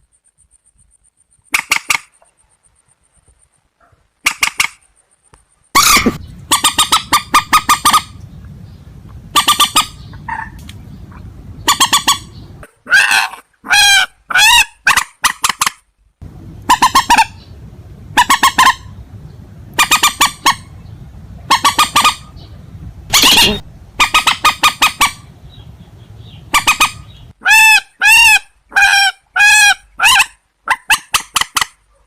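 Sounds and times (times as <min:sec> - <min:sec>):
harsh honking bird calls: 0:05.8 - 0:08.3, 0:09.2 - 0:15.1, 0:16.6 - 0:19.0, 0:19.7 - 0:30.2.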